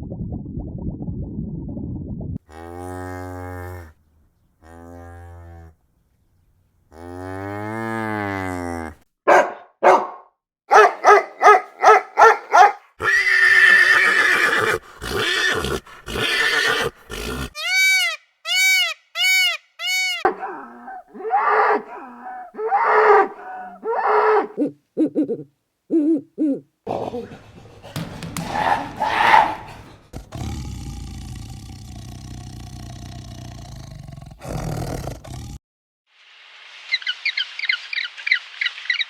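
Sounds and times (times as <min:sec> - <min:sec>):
animal calls: 0:11.5 - 0:25.5, 0:26.9 - 0:30.5, 0:36.9 - 0:39.0.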